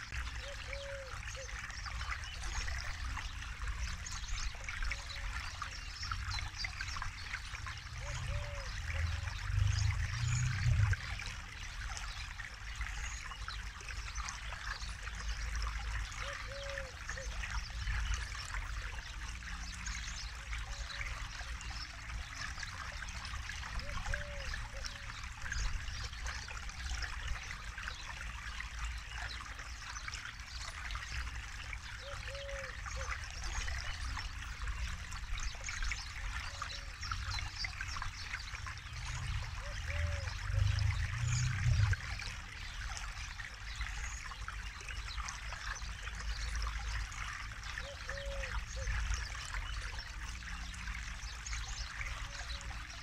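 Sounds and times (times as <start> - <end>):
river water flowing: 0.0 - 53.0.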